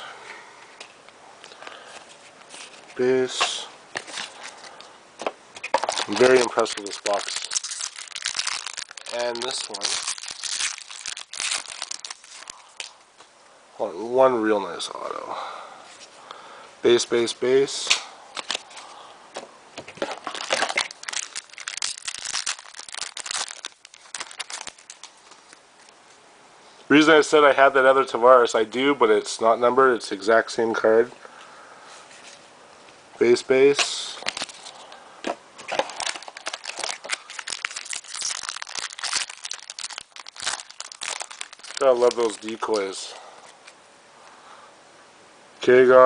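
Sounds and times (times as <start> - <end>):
cards being handled: 1.8 - 12.9, 17.9 - 18.8, 19.4 - 26.0, 33.8 - 43.8
foil wrapper crinkling: 3.5 - 13.0, 18.4 - 18.9, 19.9 - 25.9, 34.2 - 34.9, 35.6 - 43.8.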